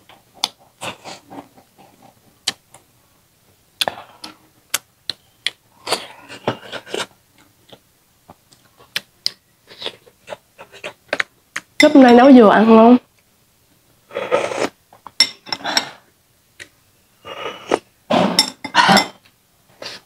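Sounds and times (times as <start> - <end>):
person chewing rice: 0.1 - 2.9, 3.8 - 11.7.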